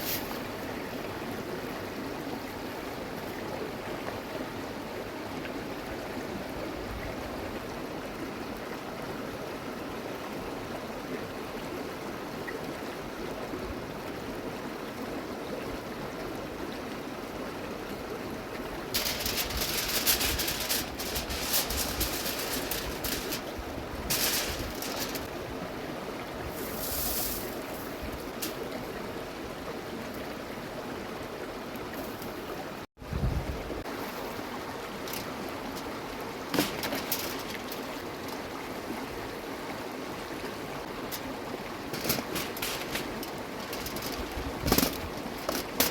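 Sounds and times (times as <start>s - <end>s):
flowing river: 0.0s - 32.9s, 33.5s - 45.9s
crisp rustling and crackling: 18.9s - 25.3s, 26.6s - 28.8s, 35.0s - 38.5s, 41.0s - 45.9s.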